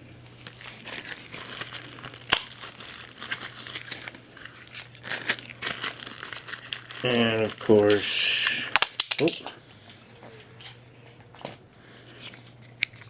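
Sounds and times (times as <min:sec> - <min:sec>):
packaging crinkling and rustling: 0:00.0 - 0:09.4
irregular crackle: 0:00.2 - 0:09.0.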